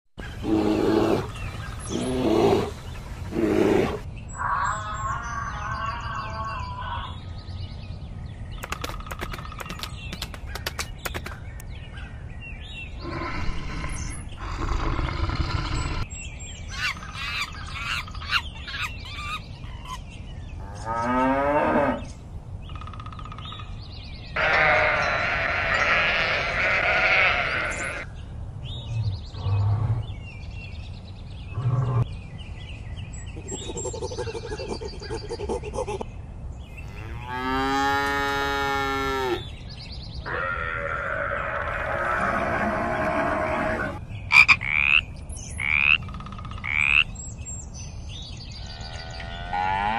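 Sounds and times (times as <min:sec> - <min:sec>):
long drawn-out animal call: 0:24.4 - 0:28.0, 0:40.3 - 0:44.0, 0:48.7 - 0:49.9
sheep bleating: 0:24.4 - 0:28.0
farm animal calls: 0:24.4 - 0:28.1, 0:40.2 - 0:45.0, 0:48.6 - 0:49.9.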